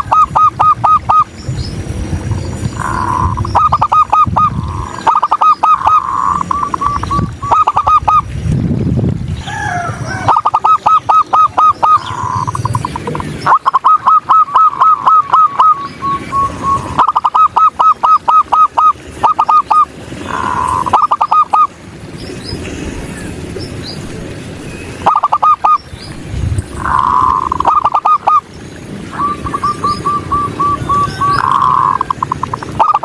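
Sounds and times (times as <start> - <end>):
dove cooing: 0.0 - 1.2, 2.3 - 8.2, 9.6 - 21.7, 26.8 - 28.4, 29.1 - 33.0.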